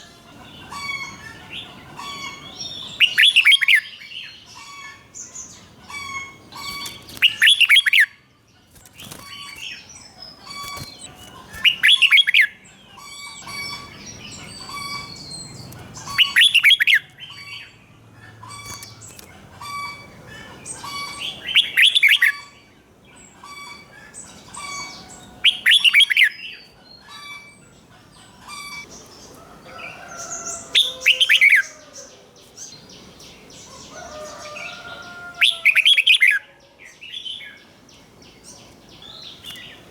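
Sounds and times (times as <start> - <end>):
soft bird chirps and whistles: 2.1 - 17.6.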